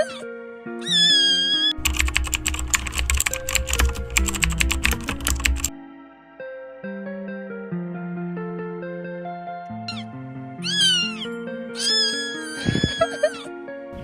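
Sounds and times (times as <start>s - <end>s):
light background music: 0.0s - 14.0s
computer keyboard typing: 1.8s - 5.7s.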